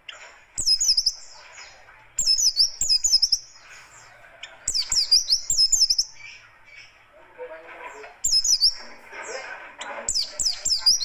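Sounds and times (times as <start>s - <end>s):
bird singing harsh fast song: 0.0s - 7.0s, 8.2s - 11.0s.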